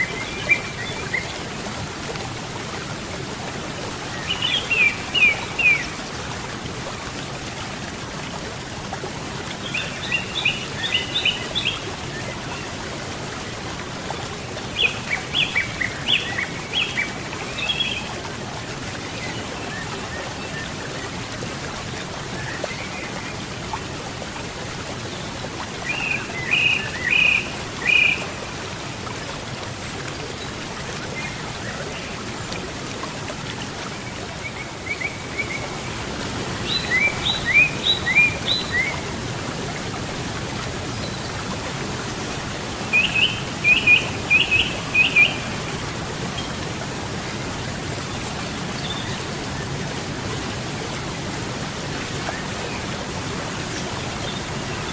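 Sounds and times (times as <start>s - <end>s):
flowing river water: 0.0s - 54.9s
songbird singing: 36.6s - 39.0s, 42.9s - 45.6s.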